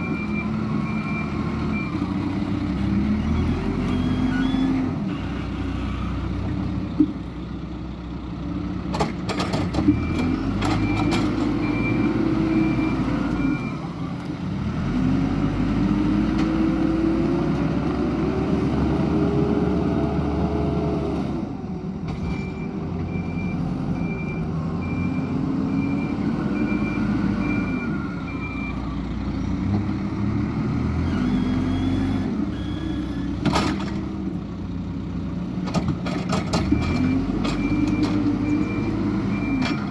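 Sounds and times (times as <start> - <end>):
reversing alarm beeping: 0.0 - 2.0, 22.4 - 28.8, 31.0 - 33.3, 36.7 - 39.9
diesel engine revving: 0.0 - 39.9.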